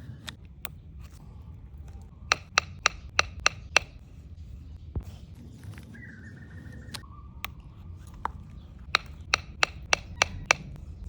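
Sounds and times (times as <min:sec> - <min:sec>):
sharp knocks: 0:02.3 - 0:04.0.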